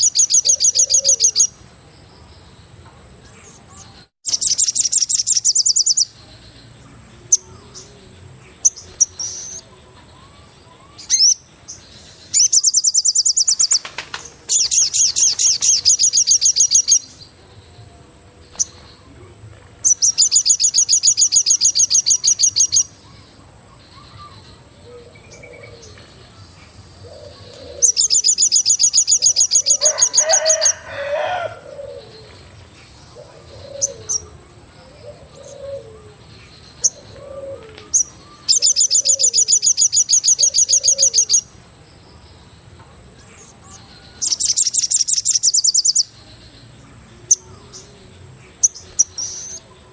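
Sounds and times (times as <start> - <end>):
bird rapid trill: 0.0 - 1.6, 4.2 - 6.1, 11.0 - 11.5, 12.3 - 17.2, 19.8 - 24.5, 27.1 - 32.2, 37.9 - 41.5
low dove-like calls: 29.2 - 32.4, 33.2 - 36.2, 36.8 - 38.0.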